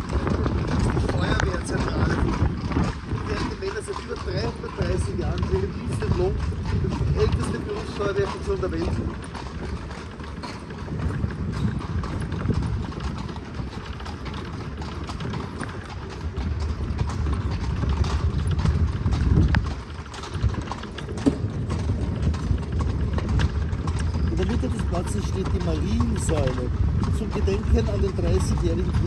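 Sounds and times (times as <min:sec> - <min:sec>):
horse hooves clip-clopping: 0:00.0 - 0:29.0.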